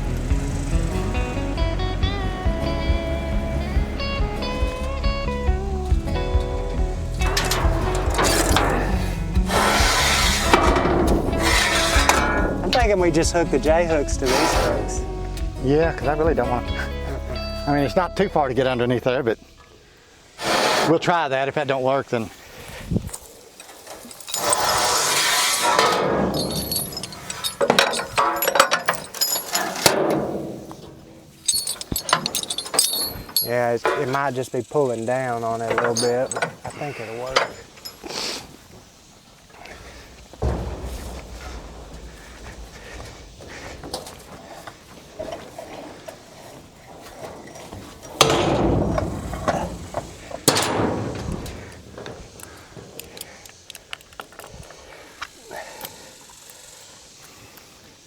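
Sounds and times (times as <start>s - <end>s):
tow chain and hooks clinking: 6.4s - 18.0s, 23.1s - 57.7s
loud sudden crashes: 39.6s - 45.2s.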